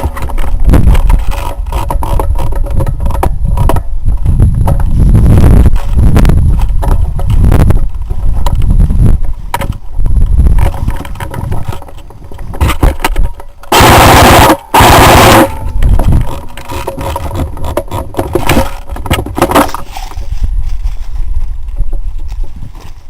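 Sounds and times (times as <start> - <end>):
knocks and rustling of movement: 0.0 - 23.0
airsoft gun full-auto fire: 13.7 - 15.6.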